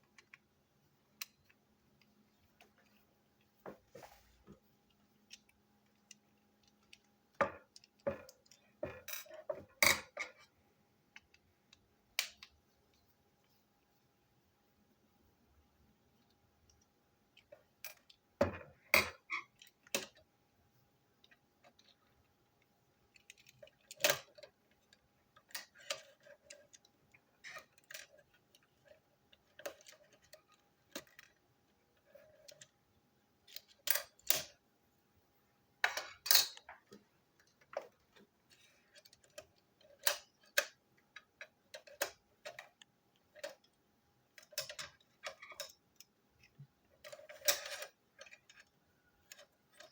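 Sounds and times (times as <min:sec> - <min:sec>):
plastic toy pieces clacking: 0:44.4 - 0:49.9.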